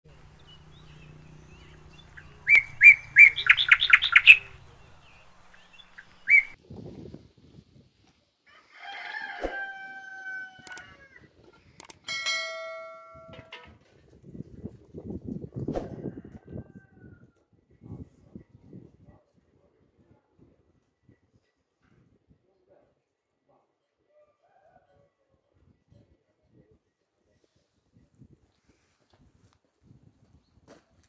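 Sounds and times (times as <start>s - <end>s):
small birds chirping: 0.1s - 6.6s
rooster crowing: 8.5s - 11.1s
bell-like chime: 12.0s - 13.6s.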